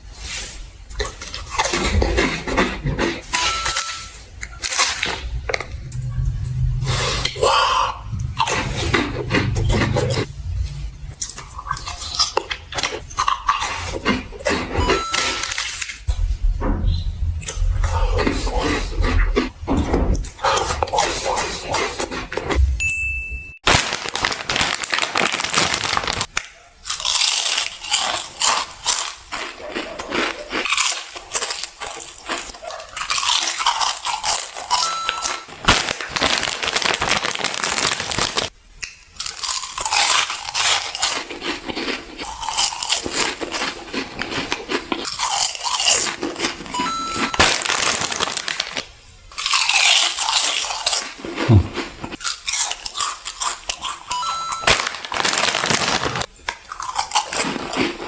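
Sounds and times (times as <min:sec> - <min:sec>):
crunchy food chewing: 0:23.7 - 0:58.0.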